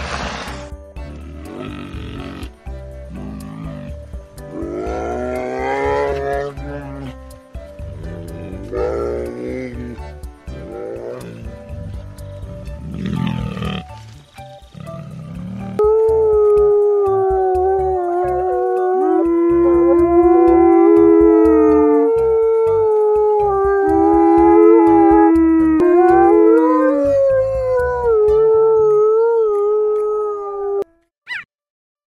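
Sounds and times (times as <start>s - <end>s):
dogs howling: 4.5s - 7.2s, 8.0s - 11.6s, 14.8s - 31.4s.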